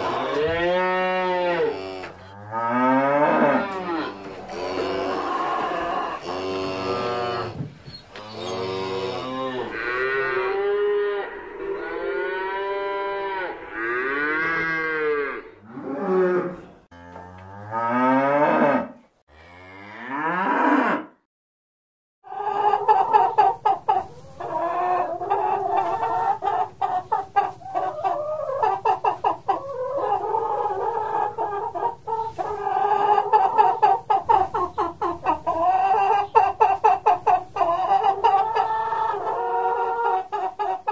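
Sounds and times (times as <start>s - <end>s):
chickens clucking: 0.0s - 0.8s, 3.3s - 12.8s, 22.3s - 40.9s
cattle mooing: 0.0s - 7.6s, 8.2s - 21.1s.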